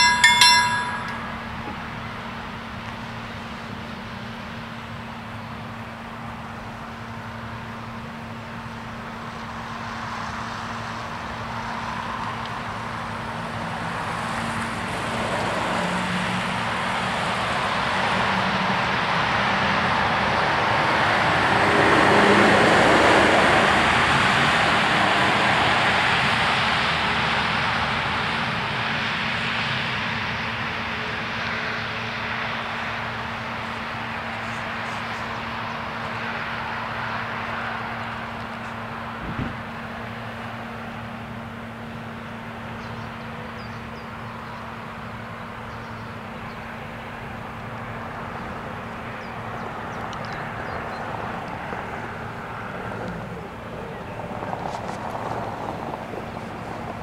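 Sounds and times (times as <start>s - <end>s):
electric train passing: 0.0s - 1.6s
level-crossing bell ringing: 0.0s - 1.6s.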